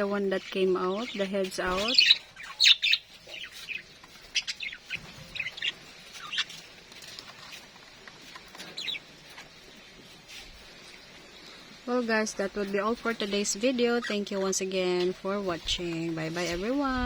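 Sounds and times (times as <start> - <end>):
budgerigars chirping: 0.0 - 6.7, 8.7 - 9.1, 12.5 - 14.9.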